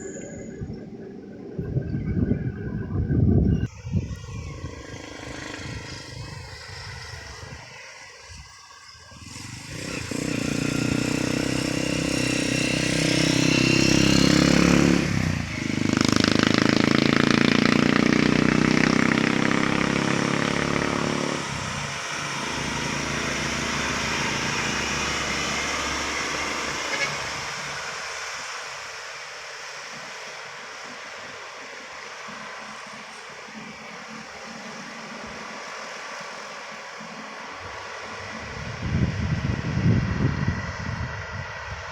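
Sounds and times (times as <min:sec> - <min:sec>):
heavy diesel engine passing: 0:00.0 - 0:41.9.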